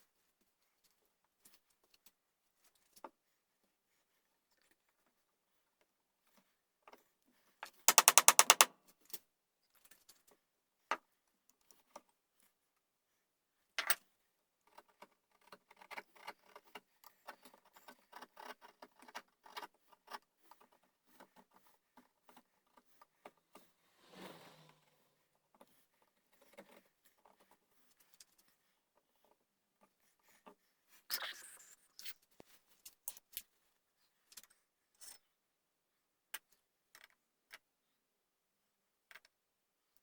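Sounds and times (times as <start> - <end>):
sharp clicks: 7.9 - 8.7
brief scrape: 23.8 - 25.2.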